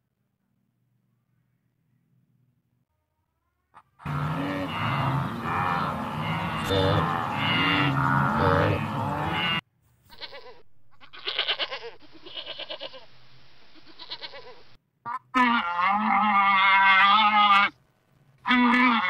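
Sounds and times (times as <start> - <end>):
goat bleating: 4.0 - 13.1, 13.7 - 17.8, 18.4 - 19.0.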